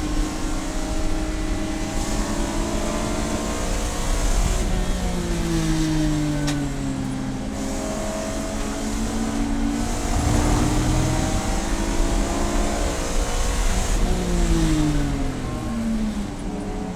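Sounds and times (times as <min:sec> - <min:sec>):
race car engine revving: 0:07.5 - 0:16.6.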